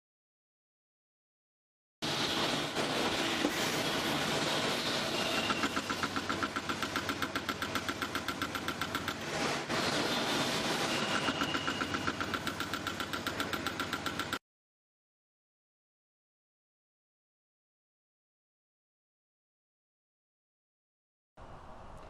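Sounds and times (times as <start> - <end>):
motor pulsing beat: 5.2 - 9.4, 11.0 - 14.4.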